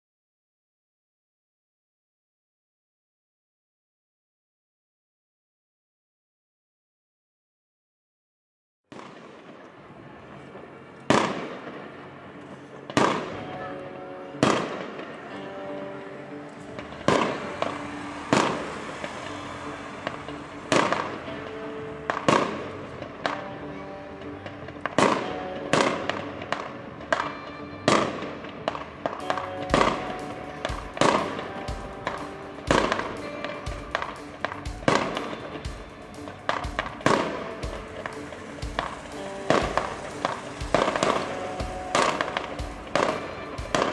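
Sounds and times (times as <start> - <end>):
background music: 9.0 - 43.9
fireworks bursting with bangs: 16.8 - 21.3, 27.9 - 43.9.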